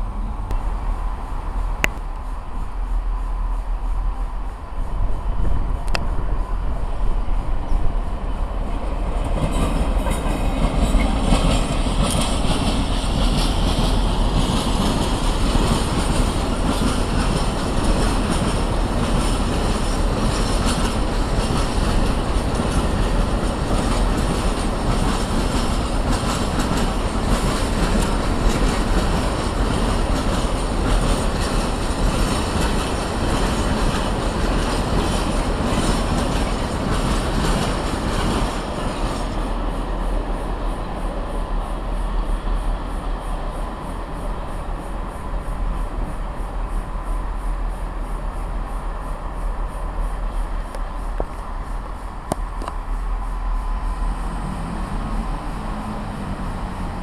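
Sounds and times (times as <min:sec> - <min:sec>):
train wheels clattering on track: 0:00.0 - 0:57.0.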